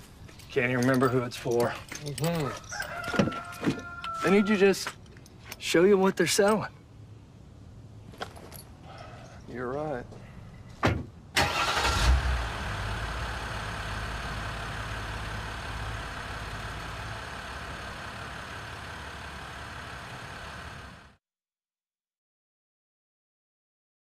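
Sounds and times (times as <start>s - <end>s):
pickup truck engine starting: 11.4s - 21.2s
truck engine running: 11.4s - 21.2s.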